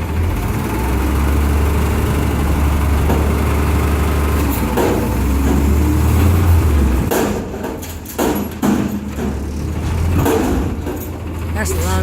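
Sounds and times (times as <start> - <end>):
garbage truck engine running: 0.0 - 12.0
bangs and knocks from truck gear: 4.4 - 11.4.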